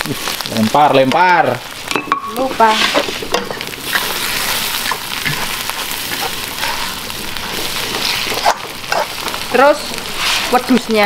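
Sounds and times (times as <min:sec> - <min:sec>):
spice paste sizzling in oil: 0:00.0 - 0:11.0
metal spatula scraping: 0:02.5 - 0:11.0.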